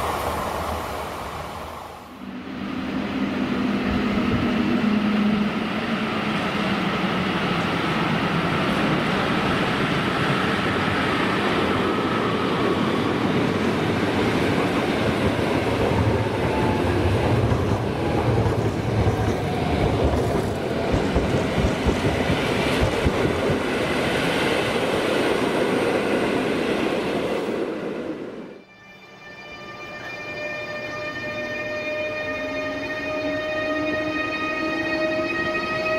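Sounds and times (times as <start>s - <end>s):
train rail noise: 0.0s - 35.9s.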